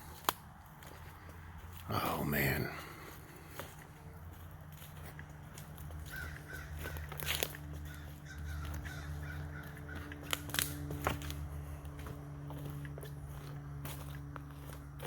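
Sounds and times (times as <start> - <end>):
steady low hum: 0.0 - 15.0
crow calling: 5.8 - 10.8
sharp snaps and clicks: 10.1 - 11.4.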